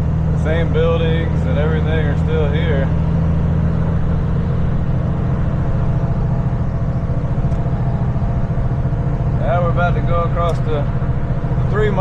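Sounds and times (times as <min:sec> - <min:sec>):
road noise: 0:00.0 - 0:12.0
vehicle engine drone: 0:00.0 - 0:12.0.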